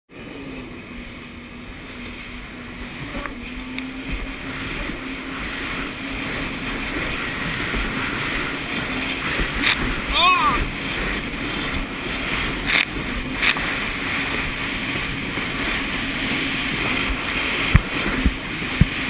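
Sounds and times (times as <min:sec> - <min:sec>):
jet ski engine running: 0:00.1 - 0:19.0.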